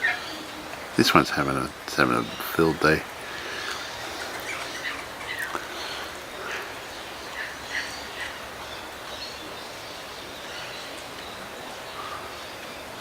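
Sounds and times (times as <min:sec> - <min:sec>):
outdoor background noise: 0:00.0 - 0:13.0
faint bird chirps: 0:03.3 - 0:09.6.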